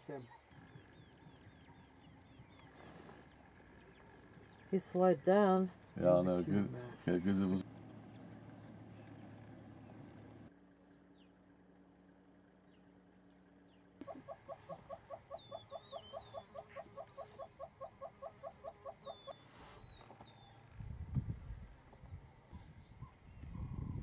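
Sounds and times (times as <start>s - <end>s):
small birds chirping: 0.0s - 10.3s, 12.6s - 24.0s
low steady hum: 0.0s - 24.0s
bird calling harsh repeated notes: 14.0s - 19.5s.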